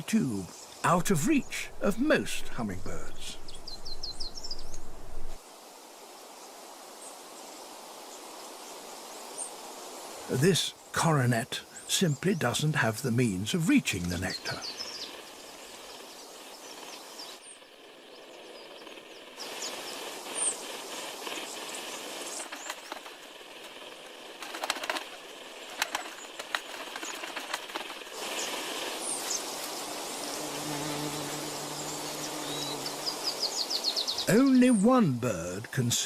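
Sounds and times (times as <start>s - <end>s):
hummingbird wings whirring: 14.3s - 34.3s.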